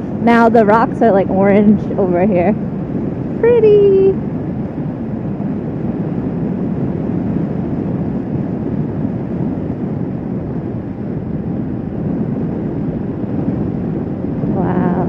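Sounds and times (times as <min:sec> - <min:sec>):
motorcycle engine drone: 0:00.0 - 0:15.0
wind rushing over microphone: 0:00.0 - 0:15.0.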